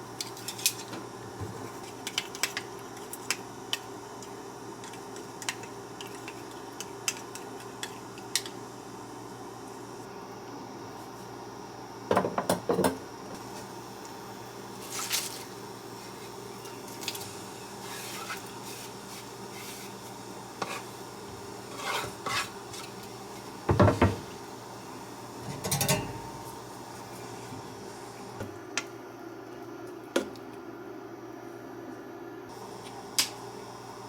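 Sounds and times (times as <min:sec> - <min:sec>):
dishes and utensils clinking: 0:25.4 - 0:26.4.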